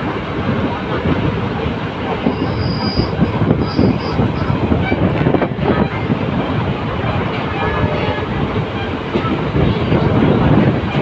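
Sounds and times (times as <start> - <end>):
train wheels rumbling and clattering: 0.0 - 11.0.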